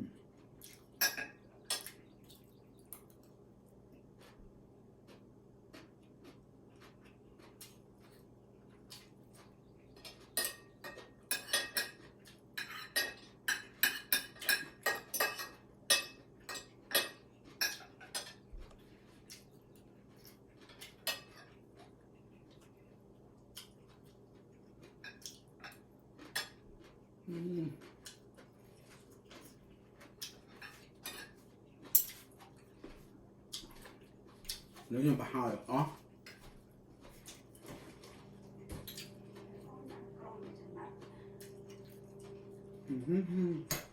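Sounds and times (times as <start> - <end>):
cutlery clinking against dishes: 1.0 - 2.0, 10.0 - 18.5, 20.2 - 21.6, 25.0 - 26.7, 30.2 - 32.3, 36.2 - 36.6, 38.7 - 39.6, 43.6 - 43.9.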